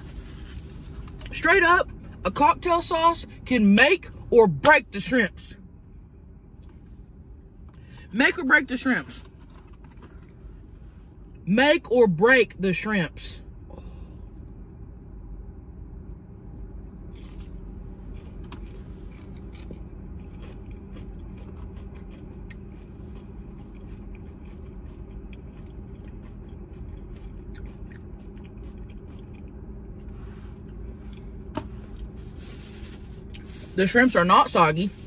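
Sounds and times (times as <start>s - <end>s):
steady low hum: 0.0s - 35.0s
crispy food crunching: 16.6s - 35.0s.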